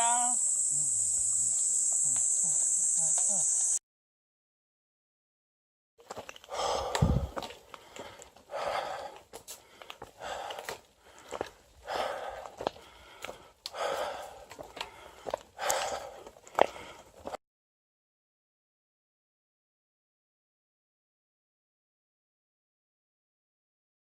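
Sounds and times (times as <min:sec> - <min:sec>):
heavy laboured breathing: 0:06.4 - 0:17.4.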